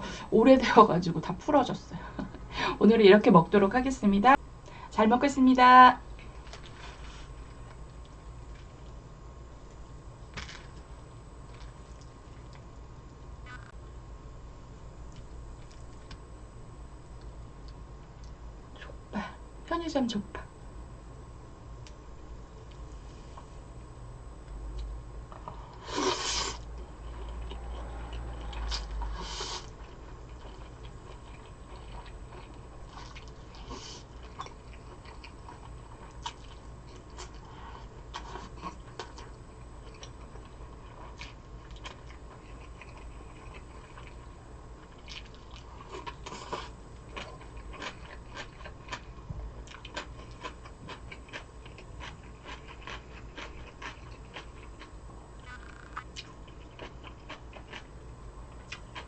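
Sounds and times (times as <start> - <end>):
chewing and biting food: 26.8 - 57.9.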